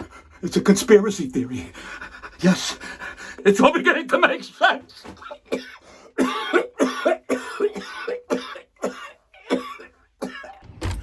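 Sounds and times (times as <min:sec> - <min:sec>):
man coughing: 0:04.9 - 0:10.6.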